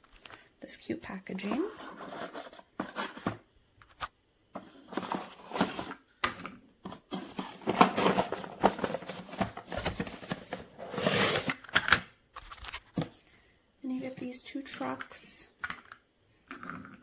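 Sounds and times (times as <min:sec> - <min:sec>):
packaging rustling and crinkling: 0:04.6 - 0:06.0, 0:06.8 - 0:13.2.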